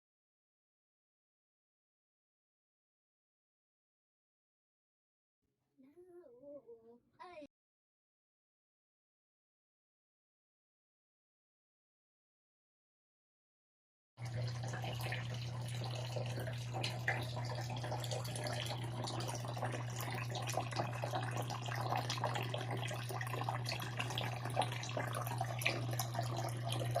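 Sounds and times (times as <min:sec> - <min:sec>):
water dripping: 0:14.2 - 0:27.0
water trickling and splashing: 0:14.2 - 0:27.0.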